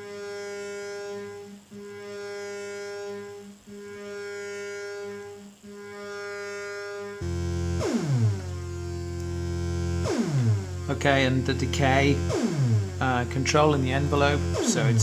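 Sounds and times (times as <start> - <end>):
buzzy synthesizer note: 0.0 - 15.0
deep tone sweeping downward: 7.2 - 15.0.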